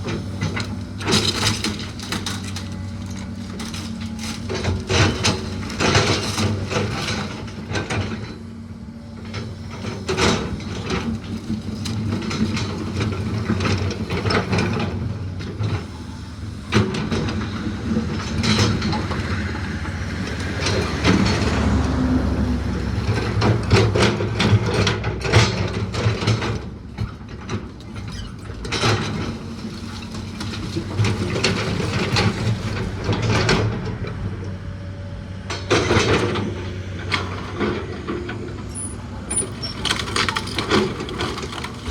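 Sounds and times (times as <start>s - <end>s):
engine running: 0.0s - 41.9s
wood splintering and cracking: 39.6s - 41.9s.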